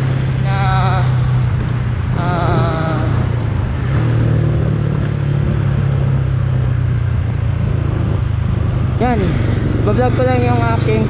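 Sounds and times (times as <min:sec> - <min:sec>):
motorcycle engine idling: 0:06.2 - 0:11.0.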